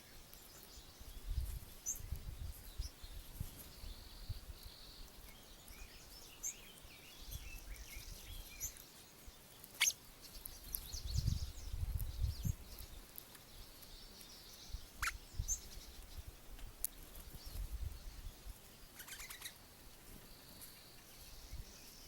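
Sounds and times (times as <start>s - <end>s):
small birds chirping: 0.0s - 22.0s
downward-sweeping bird calls: 18.9s - 19.6s.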